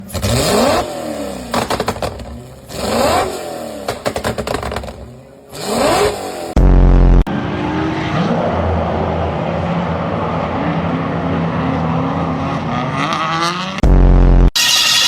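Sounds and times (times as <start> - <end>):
exhaust crackles: 0.0 - 7.2
car engine revving: 0.0 - 14.5.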